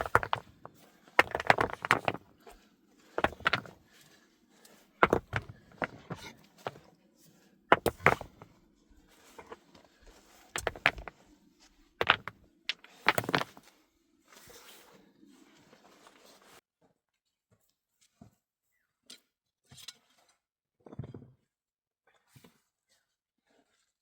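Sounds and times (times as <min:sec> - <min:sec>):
sharp knocks and scrapes: 0:00.0 - 0:02.6, 0:03.2 - 0:03.8, 0:05.0 - 0:06.8, 0:07.7 - 0:08.5, 0:10.6 - 0:11.2, 0:12.0 - 0:13.6.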